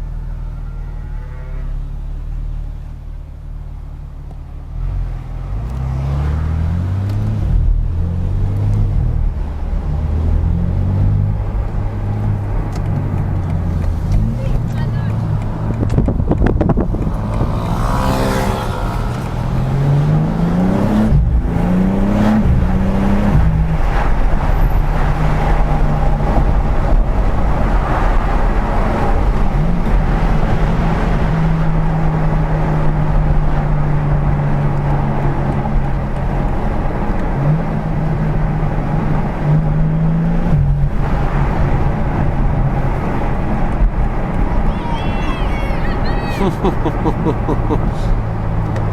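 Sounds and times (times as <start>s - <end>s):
car engine accelerating through gears: 4.3s - 44.7s.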